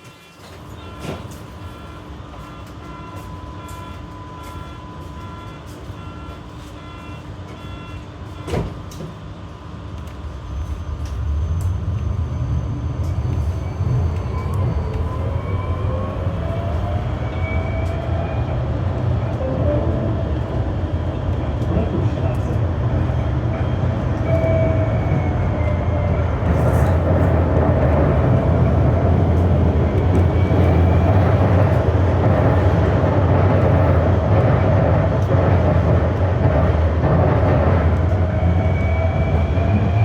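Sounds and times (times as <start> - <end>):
tram rolling rumble: 0.0 - 40.0
tram beeping: 0.1 - 9.1, 10.1 - 40.0
tram motor whine: 0.1 - 40.0.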